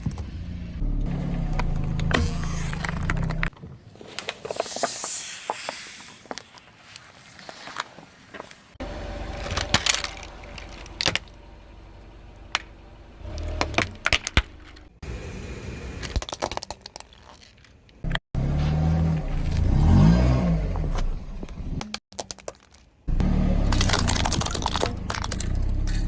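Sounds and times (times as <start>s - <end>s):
car engine running: 0.0s - 3.5s, 18.1s - 21.8s, 23.1s - 26.0s
car tyres crushing toys: 1.3s - 15.0s, 16.0s - 26.0s
objects cracking and snapping: 9.4s - 11.4s, 16.0s - 18.2s, 21.8s - 23.1s, 23.7s - 26.0s.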